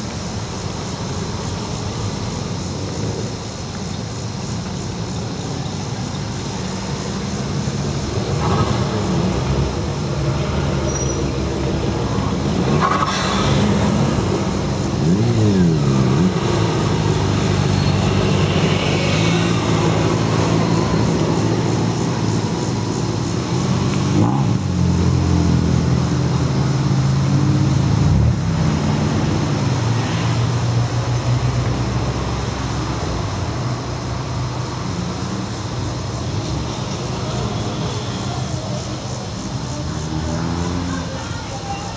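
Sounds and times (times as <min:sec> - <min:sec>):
cars passing by: 0:00.0 - 0:41.9
engine revving: 0:11.7 - 0:22.1, 0:23.4 - 0:33.0.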